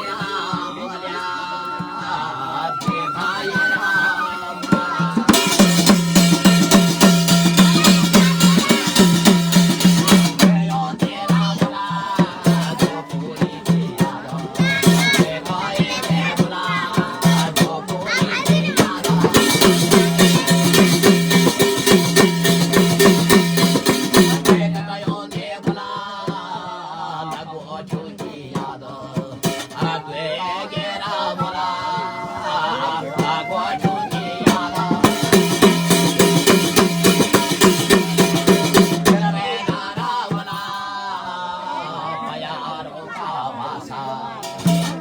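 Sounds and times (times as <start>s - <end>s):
person singing: 0.0s - 21.6s, 31.5s - 40.4s
fast even drumming: 0.0s - 26.5s, 27.2s - 40.8s, 44.4s - 45.0s.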